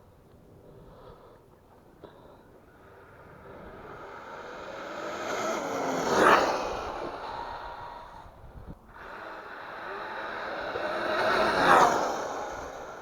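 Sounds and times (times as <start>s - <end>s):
radio-controlled car speeding past: 3.0s - 8.4s, 9.0s - 13.0s.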